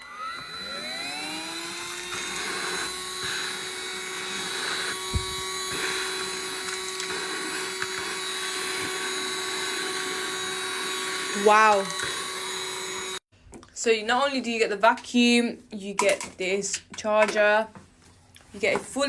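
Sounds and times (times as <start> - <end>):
handheld vacuum running: 0.0 - 13.3.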